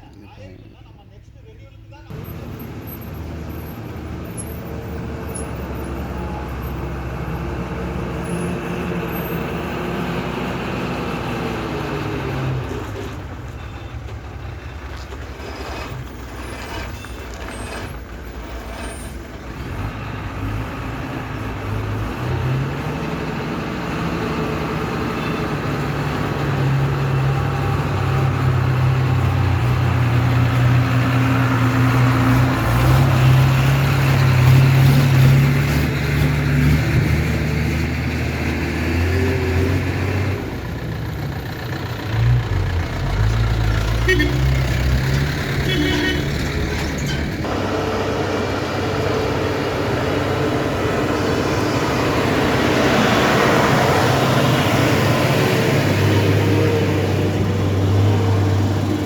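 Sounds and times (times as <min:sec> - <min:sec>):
heavy truck engine running: 0:02.1 - 0:59.0.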